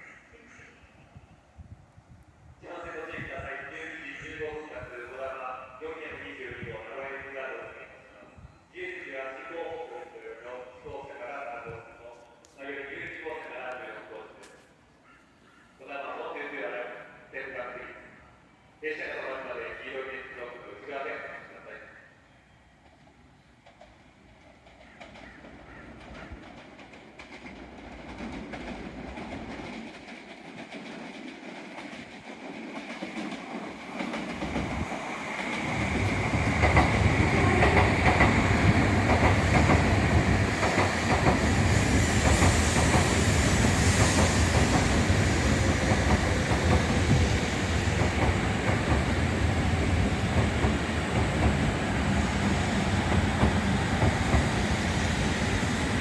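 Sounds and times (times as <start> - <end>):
train rumbling: 22.8 - 56.0.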